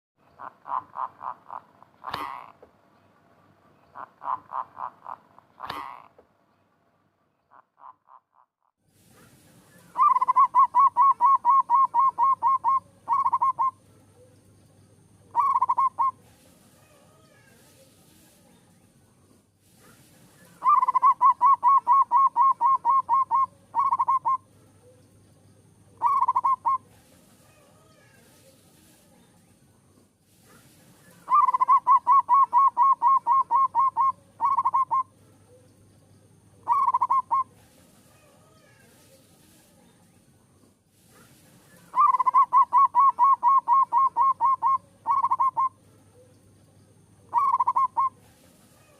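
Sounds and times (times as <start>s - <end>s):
dove cooing: 0.4s - 2.6s, 4.0s - 6.1s, 10.0s - 14.3s, 15.3s - 16.2s, 20.6s - 25.0s, 26.0s - 26.9s, 31.2s - 35.6s, 36.6s - 37.6s, 41.9s - 45.8s, 47.3s - 48.2s.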